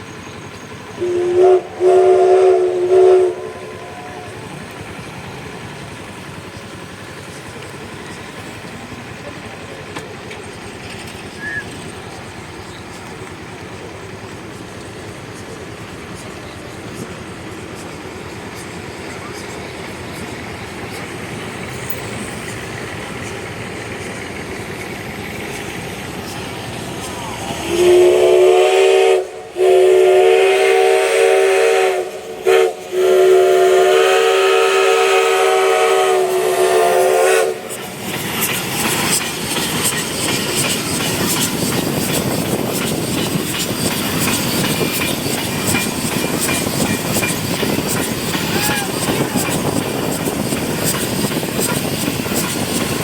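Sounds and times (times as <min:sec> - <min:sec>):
rapid clicking of train: 0:00.0 - 0:53.0
train running: 0:00.0 - 0:53.0
steam locomotive whistle: 0:00.9 - 0:05.0, 0:26.2 - 0:53.0.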